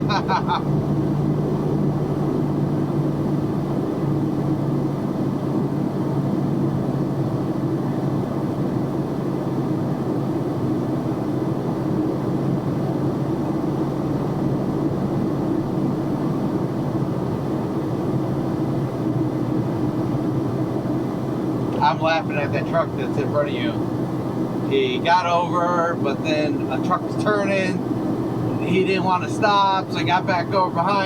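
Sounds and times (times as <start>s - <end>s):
road noise: 0.0s - 4.9s, 12.8s - 31.0s
truck engine drone: 0.0s - 31.0s.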